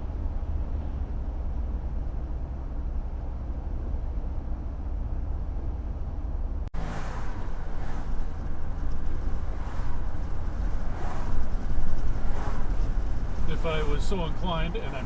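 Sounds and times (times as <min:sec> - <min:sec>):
vehicle road and engine rumble: 0:00.0 - 0:15.0.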